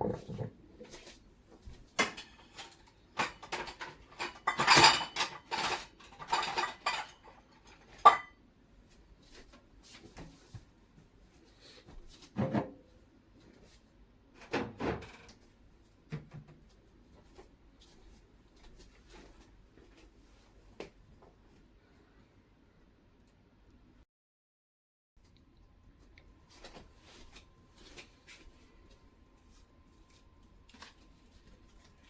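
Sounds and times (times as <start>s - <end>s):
utensils clinking against dishes: 2.0s - 8.4s.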